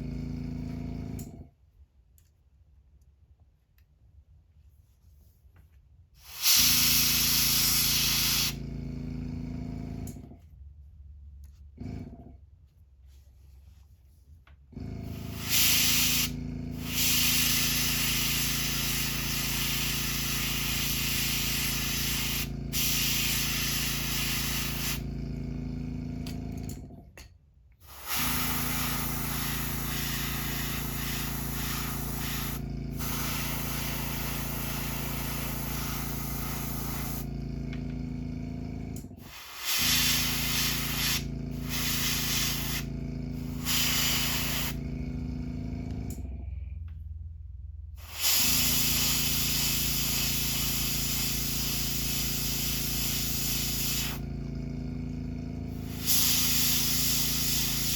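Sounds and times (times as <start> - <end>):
air compressor humming: 0.0 - 1.5, 6.2 - 10.4, 11.7 - 12.4, 14.7 - 47.2, 47.9 - 57.9
airbrush hissing: 6.2 - 8.6, 15.0 - 25.2, 27.8 - 37.4, 39.2 - 45.1, 48.0 - 54.3, 55.7 - 57.9.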